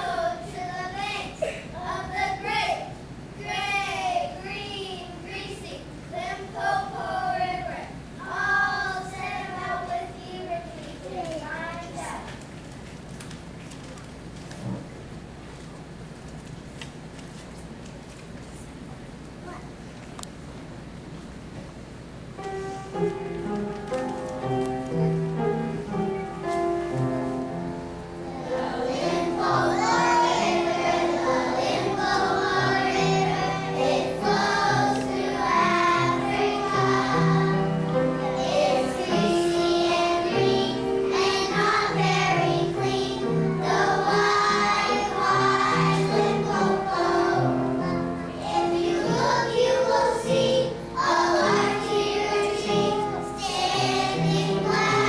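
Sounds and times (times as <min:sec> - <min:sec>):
children singing together: 0:00.0 - 0:10.6, 0:28.2 - 0:55.0.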